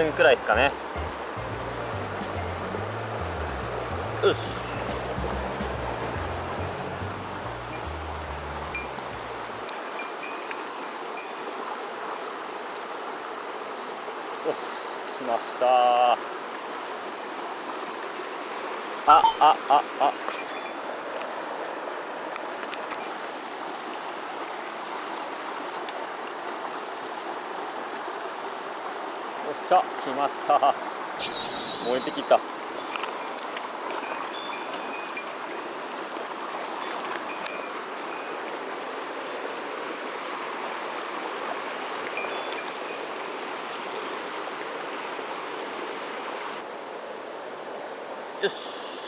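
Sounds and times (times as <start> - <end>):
stream rushing over rocks: 0.0 - 48.4.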